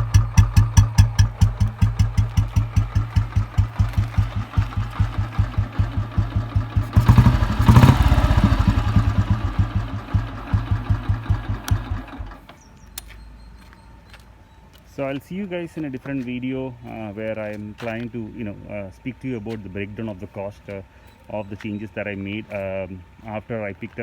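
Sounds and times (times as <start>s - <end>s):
motorcycle engine thumping at idle: 0.0s - 13.1s.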